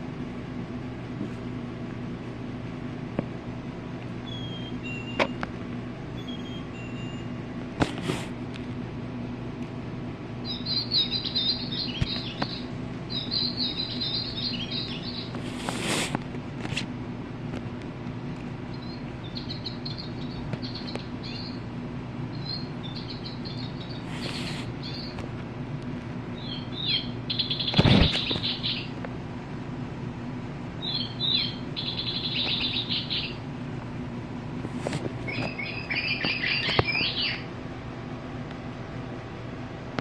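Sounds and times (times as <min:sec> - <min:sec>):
toy bird chirping trills: 0:10.5 - 0:15.3, 0:26.4 - 0:28.9, 0:30.8 - 0:33.4, 0:35.3 - 0:37.4.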